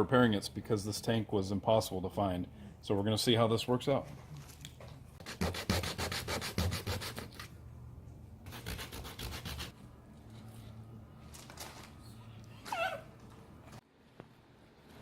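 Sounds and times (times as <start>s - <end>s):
sandpaper rubbing on plastic: 5.2s - 7.4s, 8.5s - 9.7s.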